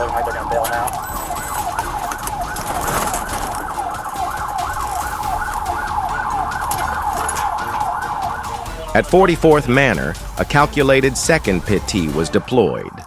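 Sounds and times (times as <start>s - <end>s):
car rumble: 0.0s - 12.4s
police siren yelping: 0.0s - 13.0s.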